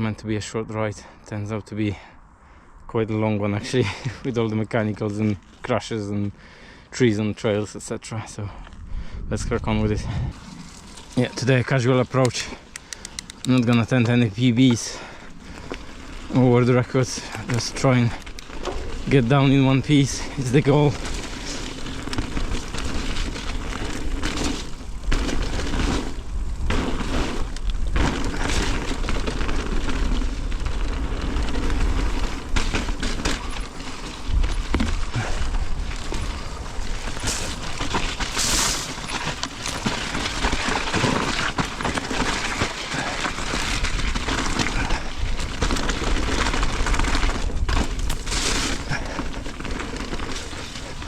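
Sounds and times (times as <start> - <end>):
wind and tyre noise: 0.0 - 51.0
bike knocking and rattling: 10.3 - 51.0.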